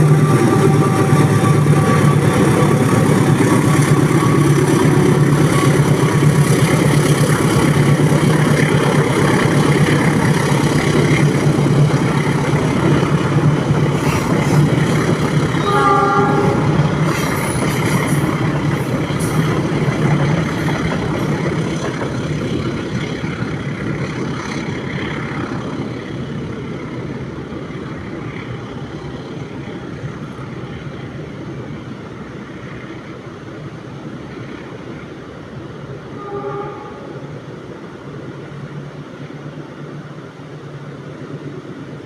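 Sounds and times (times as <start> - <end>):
train wheels clattering on rails: 0.0 - 31.4.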